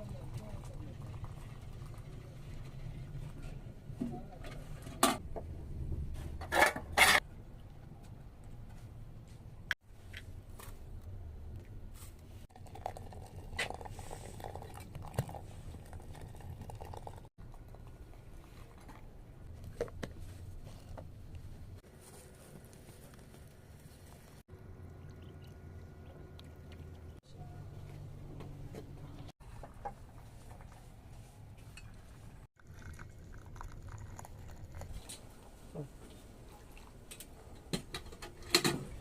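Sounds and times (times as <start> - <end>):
low steady hum: 7.2 - 38.0.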